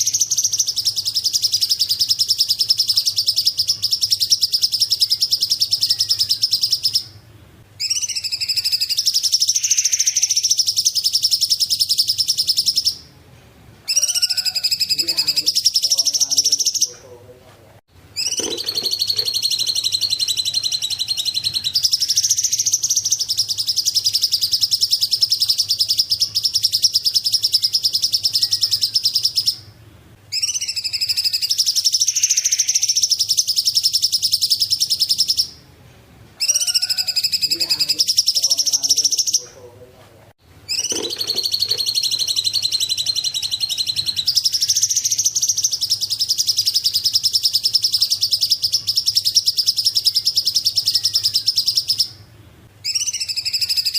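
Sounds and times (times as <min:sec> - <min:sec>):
songbird high rapid trills: 0:40.7 - 0:49.8.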